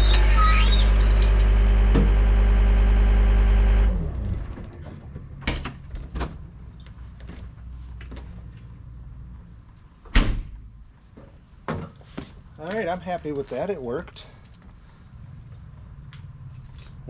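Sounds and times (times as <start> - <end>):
diesel engine running and shutting off: 0.0 - 5.5.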